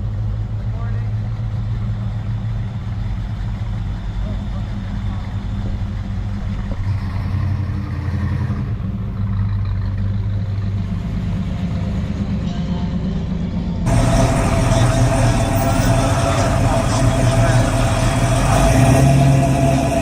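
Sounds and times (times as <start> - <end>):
car engine idling: 0.0 - 20.0
louder fuller noise: 11.5 - 20.0.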